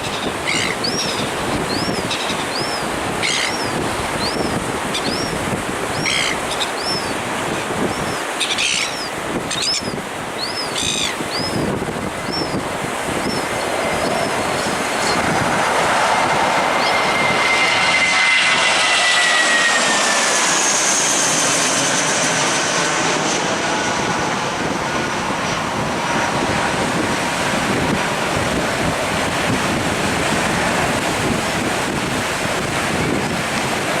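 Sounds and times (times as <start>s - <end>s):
jet engines roaring: 0.0s - 34.0s
bird chirps: 0.5s - 7.2s, 7.9s - 11.6s.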